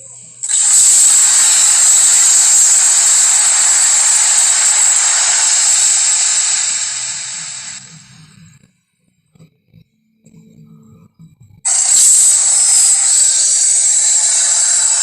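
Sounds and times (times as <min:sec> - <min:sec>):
loud steady hiss: 0:00.0 - 0:08.4, 0:11.7 - 0:15.0.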